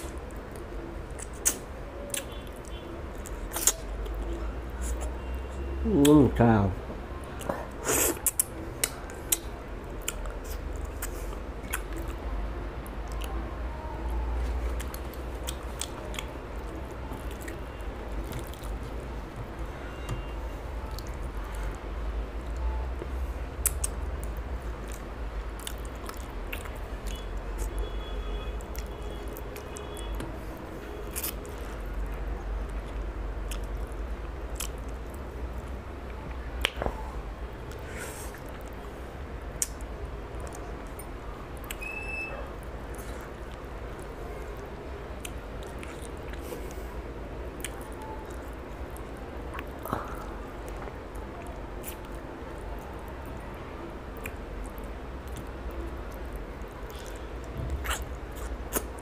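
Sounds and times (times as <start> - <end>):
person chewing: 0.0 - 6.2, 7.2 - 12.2, 14.4 - 19.6, 23.0 - 30.2, 30.8 - 36.8, 39.5 - 41.8, 45.2 - 53.5, 54.1 - 59.0.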